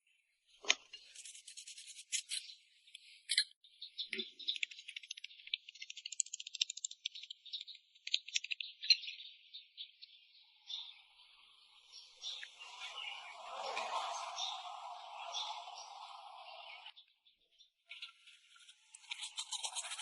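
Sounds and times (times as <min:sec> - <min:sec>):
high-pitched scratching and clicking: 0:01.0 - 0:02.5, 0:04.2 - 0:08.6, 0:18.5 - 0:20.0.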